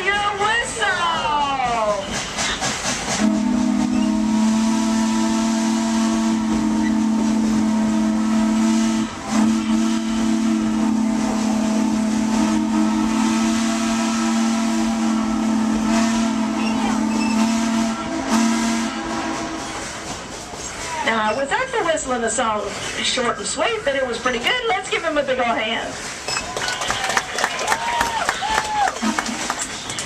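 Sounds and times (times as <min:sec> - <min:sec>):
steam hissing: 0:00.5 - 0:24.2
steam whistle chime: 0:03.2 - 0:19.8.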